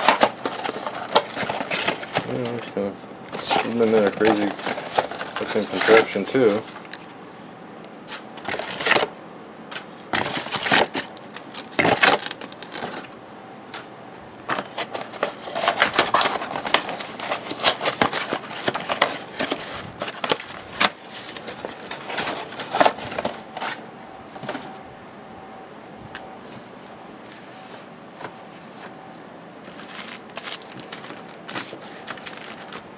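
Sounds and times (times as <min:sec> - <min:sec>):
cards shuffling: 0:00.0 - 0:02.7, 0:03.3 - 0:07.1, 0:14.5 - 0:23.8, 0:29.6 - 0:32.9
wrappers rustling and tearing: 0:00.0 - 0:02.7, 0:03.3 - 0:07.0, 0:10.1 - 0:13.1, 0:14.5 - 0:23.8, 0:29.6 - 0:32.9.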